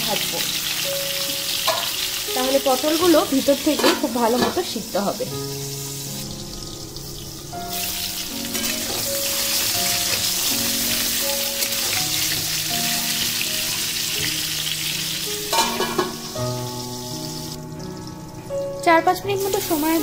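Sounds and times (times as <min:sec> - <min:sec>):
background music: 0:00.0 - 0:20.0
vegetables sizzling in oil: 0:00.0 - 0:20.0
metal spatula turning food: 0:01.4 - 0:02.2, 0:03.1 - 0:04.8, 0:08.3 - 0:13.0, 0:15.5 - 0:16.4.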